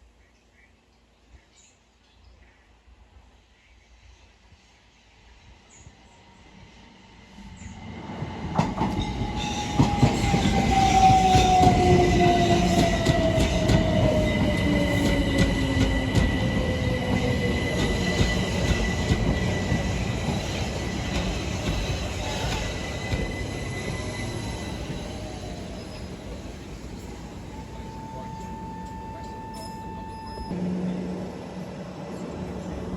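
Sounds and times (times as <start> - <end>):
train passing: 4.3 - 32.9
steady high tone: 10.3 - 31.6.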